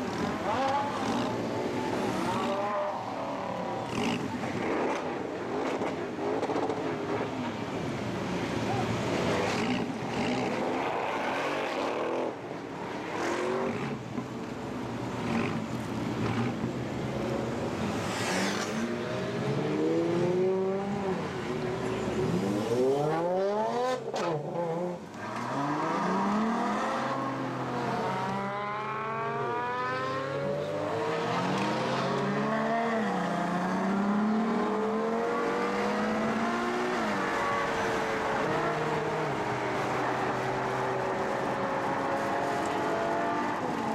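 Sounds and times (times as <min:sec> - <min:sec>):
sports car engines revving past: 0:15.1 - 0:43.9.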